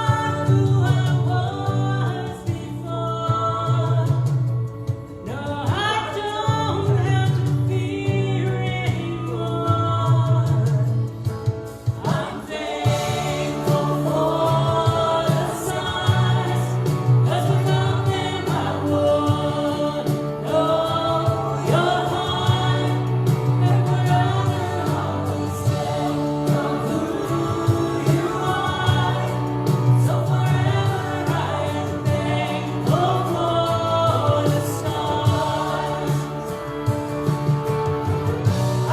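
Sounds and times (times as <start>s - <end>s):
band with steady bass line: 0.0s - 38.9s
voices singing: 11.7s - 38.9s.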